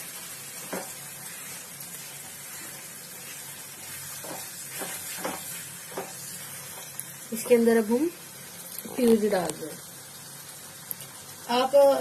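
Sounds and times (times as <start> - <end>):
masala sizzling in a pan: 0.0 - 12.0
wooden spatula knocking pan: 0.6 - 1.0, 4.2 - 6.2.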